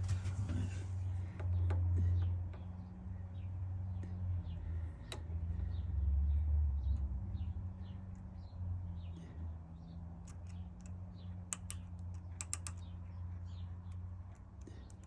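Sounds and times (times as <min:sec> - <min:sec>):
machine electric hum: 0:00.0 - 0:15.0
small sharp clicks: 0:04.0 - 0:05.3, 0:10.2 - 0:15.0.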